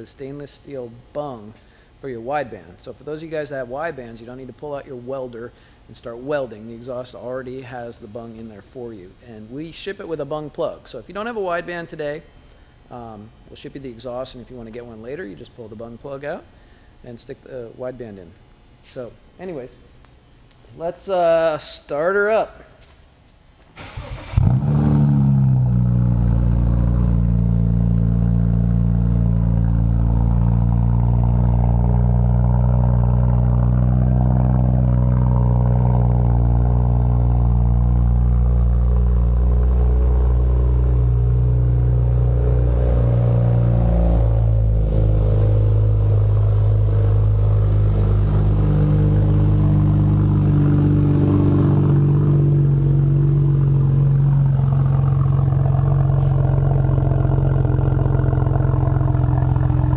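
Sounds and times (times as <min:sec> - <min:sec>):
car engine cold start and idling: 0:23.8 - 0:59.9.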